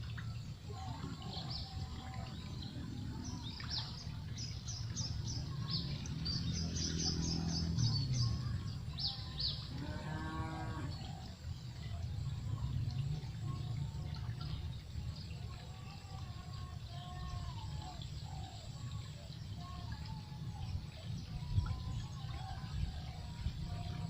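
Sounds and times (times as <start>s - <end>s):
cow mooing: 9.7s - 11.0s.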